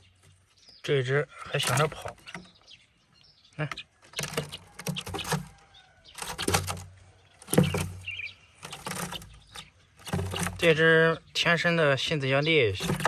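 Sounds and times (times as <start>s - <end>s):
bird fluttering in a box: 4.1s - 10.8s, 12.7s - 13.0s.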